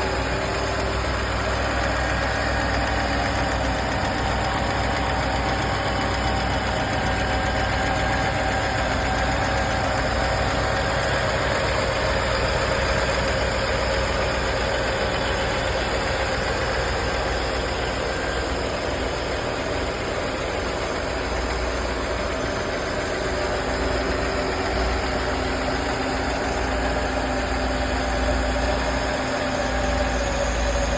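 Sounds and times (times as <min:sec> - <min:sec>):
car engine idling: 0:00.0 - 0:30.9.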